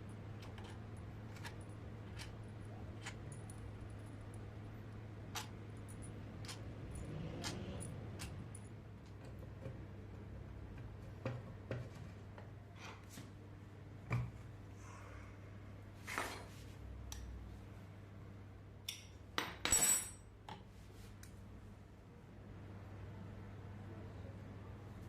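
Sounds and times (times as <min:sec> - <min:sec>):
steady low hum: 0:00.0 - 0:16.0
metal tools clinking: 0:19.6 - 0:20.2.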